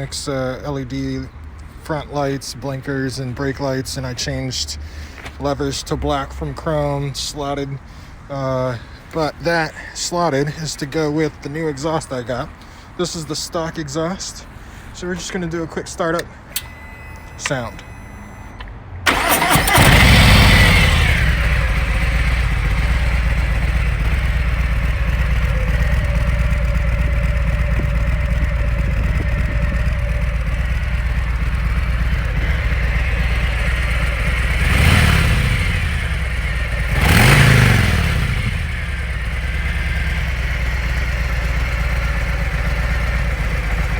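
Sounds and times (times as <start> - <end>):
motorcycle throttle blips: 16.2 - 43.9
motorcycle engine idling: 19.1 - 43.9.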